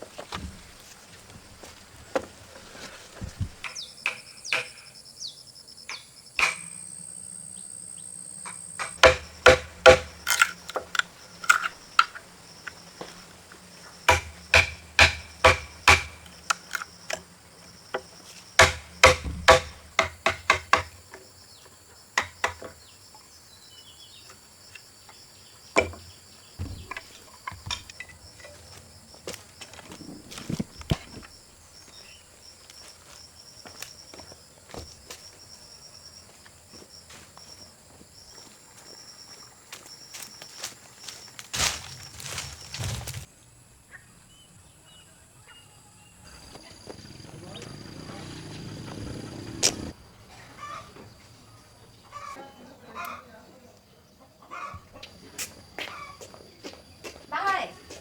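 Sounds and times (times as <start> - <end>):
insects buzzing: 0.0 - 58.0
hand tool striking timber post: 3.5 - 4.9, 6.4 - 6.7, 8.5 - 12.2, 14.1 - 16.8, 18.6 - 21.0, 22.2 - 22.7.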